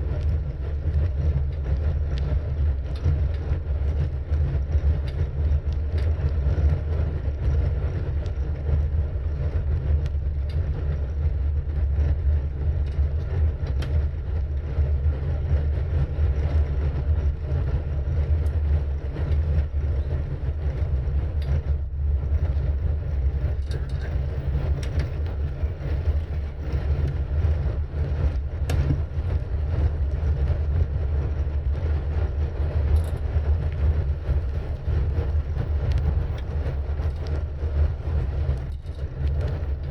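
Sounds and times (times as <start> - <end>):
wind buffeting microphone: 0.0 - 39.9
faint clicks and knocks: 21.4 - 27.6, 32.6 - 39.9.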